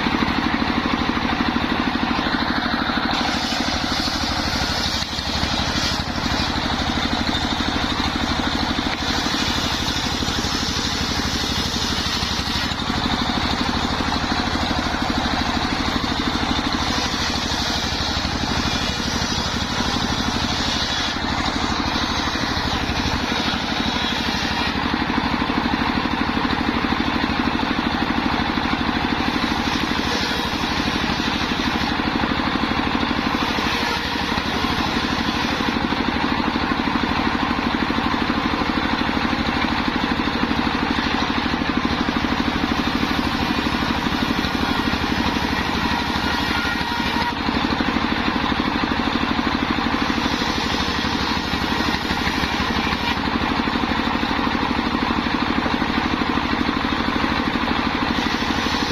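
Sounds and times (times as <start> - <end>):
circular saw cutting timber: 0.0 - 58.9.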